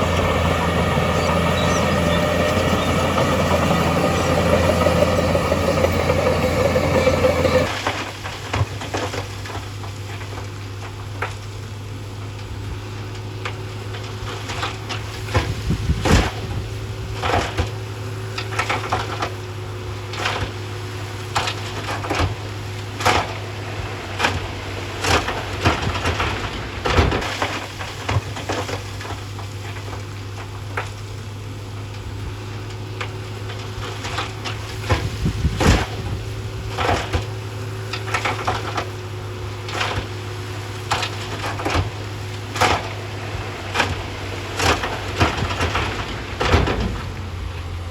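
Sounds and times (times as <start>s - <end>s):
heavy machine diesel engine: 0.0s - 7.9s.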